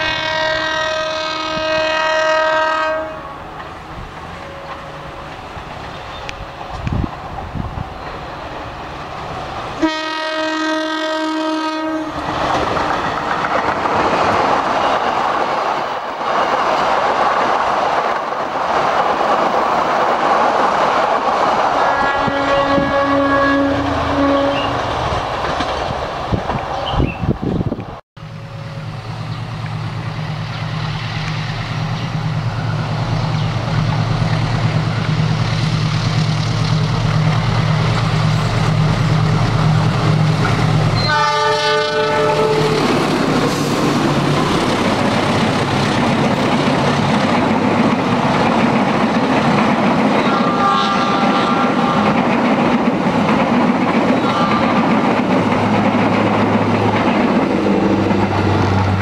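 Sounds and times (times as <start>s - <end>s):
locomotive horn blast: 0.0s - 3.6s, 9.8s - 12.4s, 21.8s - 24.8s, 40.9s - 44.0s, 50.2s - 52.2s, 54.2s - 54.9s
diesel locomotive engine hum: 0.0s - 59.0s
train coaches running on rails: 0.0s - 59.0s.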